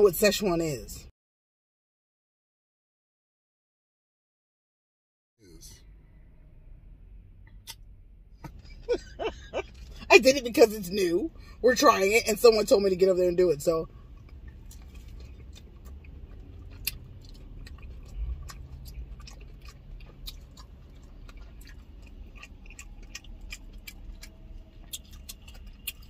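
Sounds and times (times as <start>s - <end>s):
low steady hum: 5.4s - 26.0s
chewing and lip smacking: 13.8s - 26.0s.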